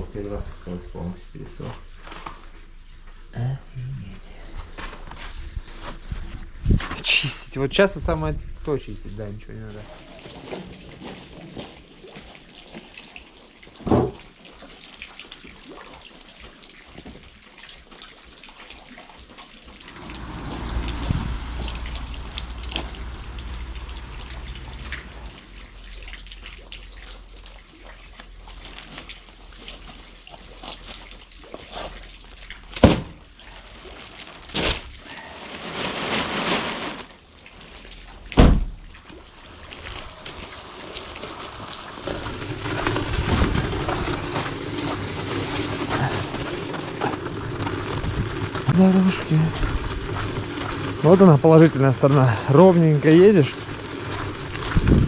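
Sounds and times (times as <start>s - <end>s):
water sloshing and dripping: 0.0s - 3.3s, 4.2s - 55.0s
low rumble: 19.9s - 26.7s.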